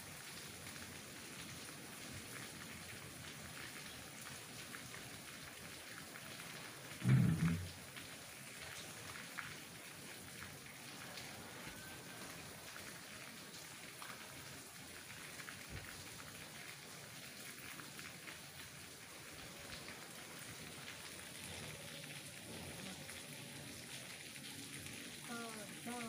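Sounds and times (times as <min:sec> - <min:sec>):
rain falling on tree leaves: 0:00.0 - 0:26.0
raindrops ticking: 0:06.9 - 0:09.5, 0:19.7 - 0:26.0.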